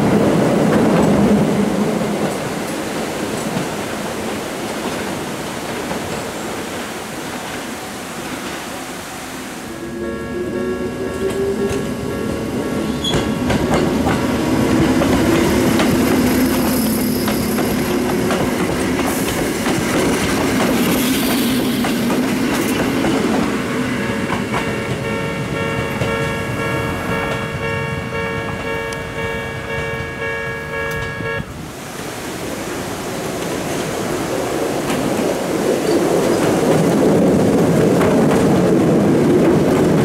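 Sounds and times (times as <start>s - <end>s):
train wheels rumbling and clicking: 0.0s - 8.6s, 11.0s - 31.3s, 33.3s - 40.0s
level-crossing warning bell: 9.6s - 17.6s, 23.1s - 31.5s.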